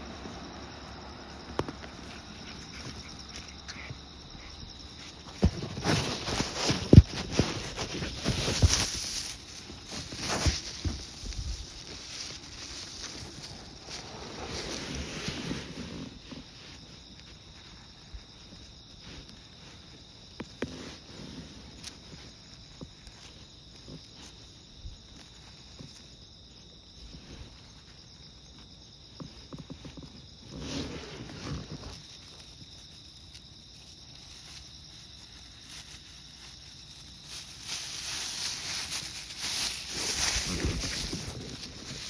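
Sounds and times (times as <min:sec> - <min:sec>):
crickets chirring: 0:00.0 - 0:42.0
rustling: 0:00.0 - 0:42.0
footsteps: 0:00.1 - 0:16.8, 0:29.2 - 0:42.0.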